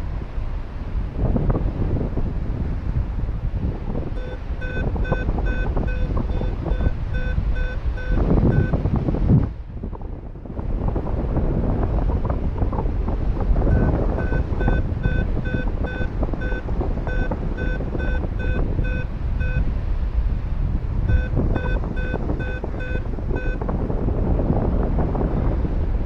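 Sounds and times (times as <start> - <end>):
wind buffeting microphone: 0.0 - 26.0
variometer electronic beeps: 4.1 - 8.8, 13.7 - 19.6, 21.1 - 23.8.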